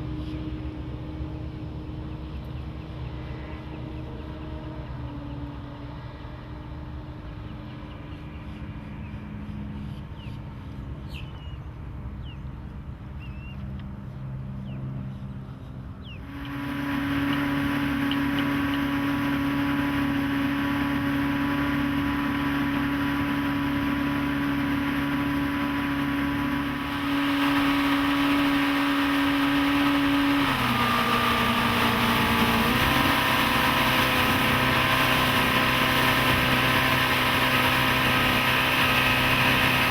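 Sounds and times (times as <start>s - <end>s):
outboard motor running: 16.2s - 39.9s
water rushing: 16.3s - 39.9s.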